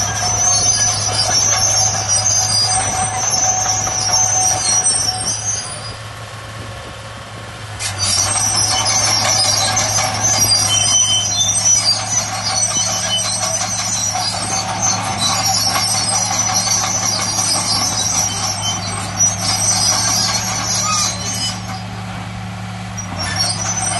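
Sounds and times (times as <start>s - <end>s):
steel tracks squealing and clanking: 0.0s - 6.2s, 7.8s - 23.9s
bulldozer diesel engine running: 0.0s - 23.9s.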